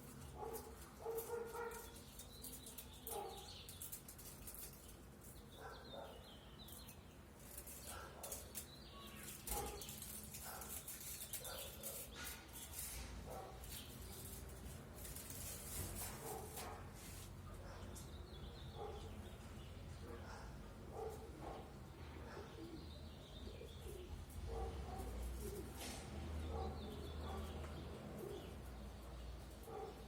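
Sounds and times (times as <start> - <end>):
faint birds chirping: 0.0 - 30.0
dog barking: 0.4 - 1.8, 18.8 - 19.1, 20.0 - 22.6, 24.5 - 25.1, 29.7 - 30.0.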